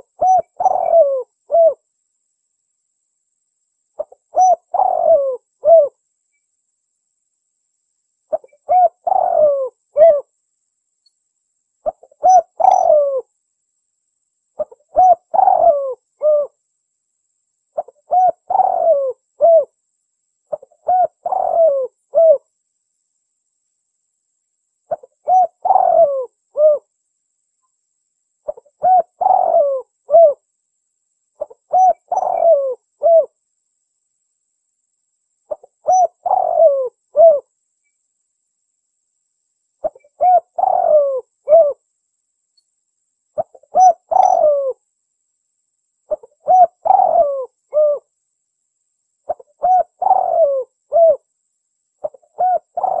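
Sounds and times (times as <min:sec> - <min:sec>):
dove cooing: 0:00.0 - 0:01.8, 0:04.0 - 0:06.0, 0:08.3 - 0:10.3, 0:11.8 - 0:13.3, 0:14.6 - 0:16.6, 0:17.8 - 0:19.7, 0:20.5 - 0:22.4, 0:24.9 - 0:26.9, 0:28.5 - 0:30.4, 0:31.4 - 0:33.4, 0:35.5 - 0:37.5, 0:39.8 - 0:41.8, 0:43.4 - 0:44.8, 0:46.1 - 0:48.1, 0:49.3 - 0:51.3, 0:52.0 - 0:53.0.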